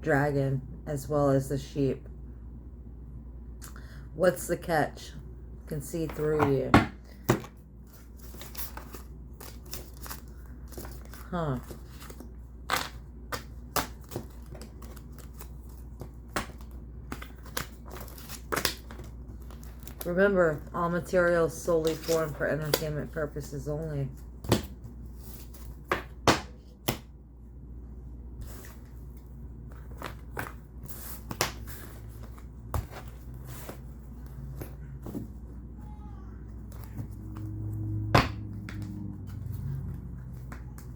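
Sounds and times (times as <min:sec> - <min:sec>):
low steady hum: 0:00.0 - 0:40.9
cards shuffling: 0:07.2 - 0:20.2.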